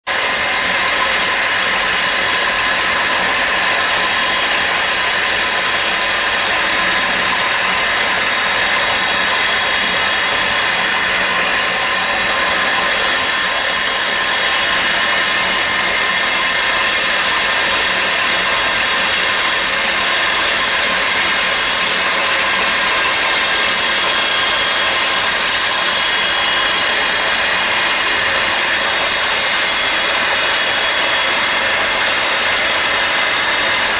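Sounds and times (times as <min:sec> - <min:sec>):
machine milling with high whine: 0:00.1 - 0:33.9.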